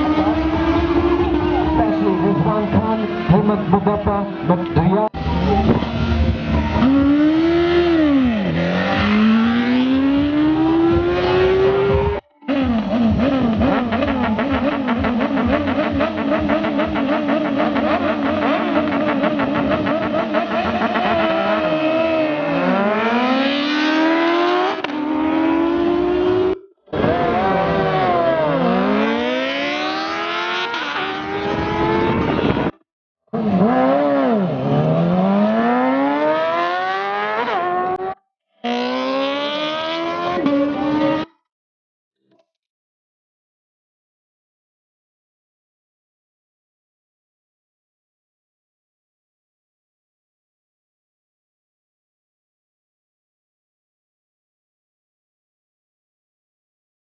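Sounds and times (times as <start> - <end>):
racing engines accelerating: 0.0 - 32.7, 33.4 - 41.4.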